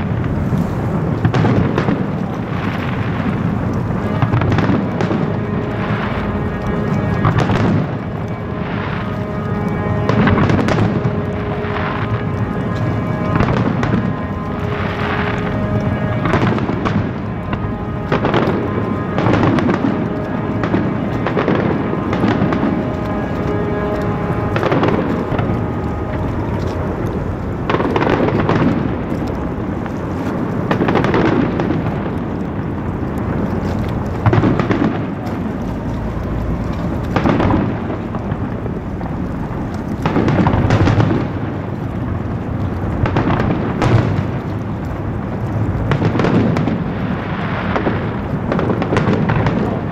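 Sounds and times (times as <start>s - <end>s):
fireworks booming: 0.0s - 49.9s
fireworks crackling: 0.0s - 49.9s
music: 4.4s - 28.1s.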